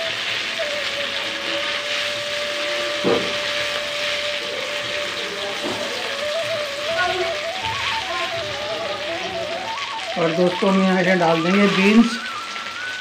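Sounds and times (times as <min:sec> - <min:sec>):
background music held note: 0:00.0 - 0:13.0
chilies sizzling in oil: 0:00.0 - 0:13.0
spatula knocking on pan: 0:02.9 - 0:03.6, 0:05.5 - 0:06.0.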